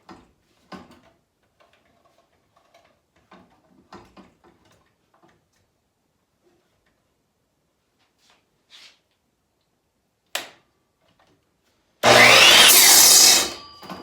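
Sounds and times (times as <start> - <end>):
miter saw motor whining: 12.0 - 13.6
saw trigger click: 12.0 - 13.6.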